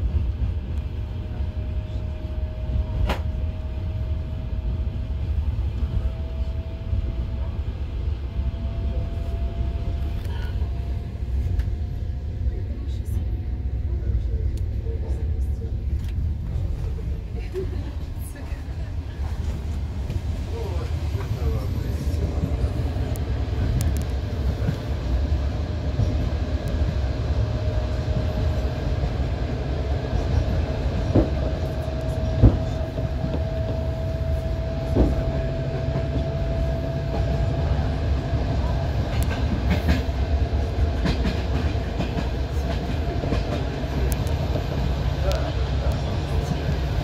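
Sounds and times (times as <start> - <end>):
train carriage rumbling on track: 0.0 - 47.0.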